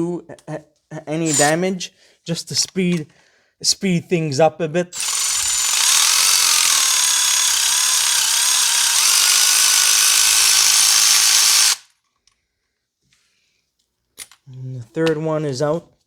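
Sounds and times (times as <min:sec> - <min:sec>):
electric ratchet whirring: 0:01.3 - 0:01.6, 0:05.0 - 0:11.9.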